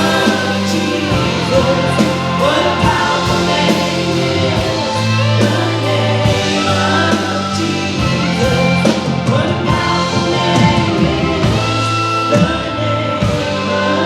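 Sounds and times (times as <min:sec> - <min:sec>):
person singing: 0:00.0 - 0:14.0
worship band playing: 0:00.0 - 0:14.0.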